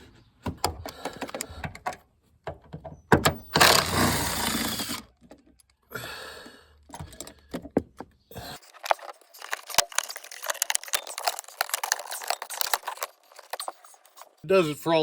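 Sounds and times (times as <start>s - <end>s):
plastic trim scraping: 3.4s - 5.4s, 8.4s - 14.4s
rapid clicks of plastic clips: 8.6s - 14.2s.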